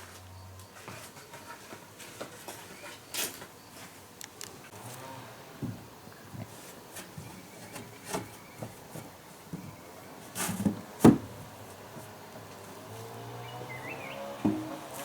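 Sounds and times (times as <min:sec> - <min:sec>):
wooden knocks and scrapes: 0:05.6 - 0:12.6, 0:14.4 - 0:15.0
loud wooden knock: 0:14.4 - 0:14.9.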